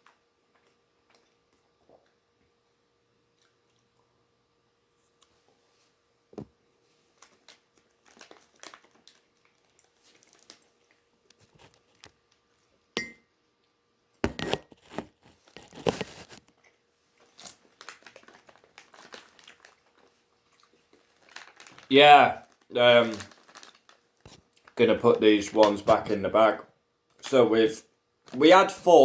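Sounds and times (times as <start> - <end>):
plastic snack packet crinkling: 7.1 - 12.1, 14.8 - 16.6, 17.2 - 26.5, 28.2 - 28.9.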